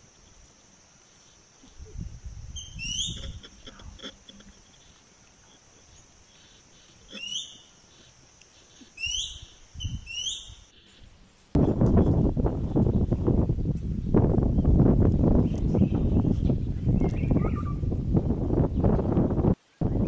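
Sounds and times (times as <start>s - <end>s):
high insect whine: 0.0s - 20.0s
bird chirping: 2.5s - 11.0s, 15.4s - 17.9s.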